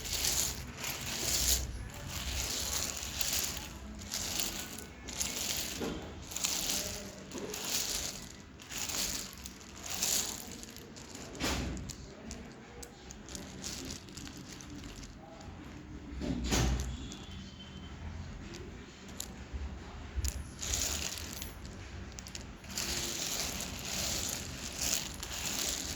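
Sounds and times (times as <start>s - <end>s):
dry clay crunching: 0.0s - 12.5s, 22.4s - 25.9s.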